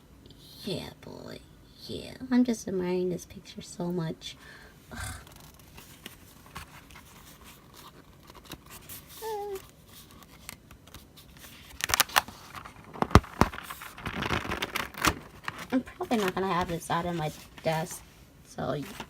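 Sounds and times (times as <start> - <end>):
person humming: 4.9 - 5.4, 9.2 - 9.6
paper calendar clicks and rustles: 5.5 - 18.0, 18.7 - 19.0.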